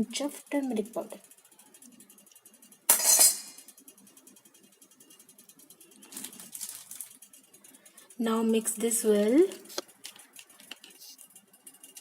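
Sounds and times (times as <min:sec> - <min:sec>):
kitchenware clinking: 0:02.9 - 0:03.7.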